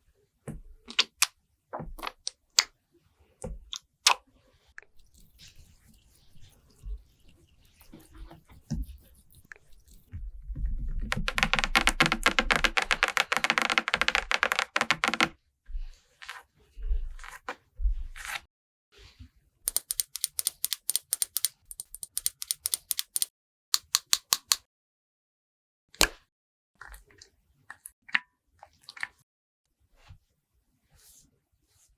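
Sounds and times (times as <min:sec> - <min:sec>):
rapid tapping clicks: 0:11.1 - 0:15.3, 0:19.7 - 0:23.3.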